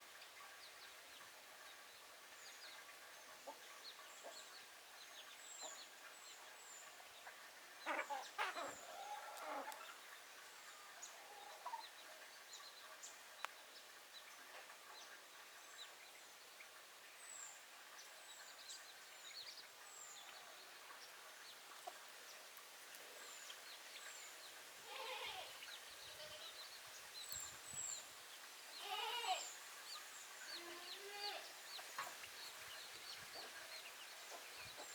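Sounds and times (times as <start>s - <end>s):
chickens clucking: 7.2s - 10.1s.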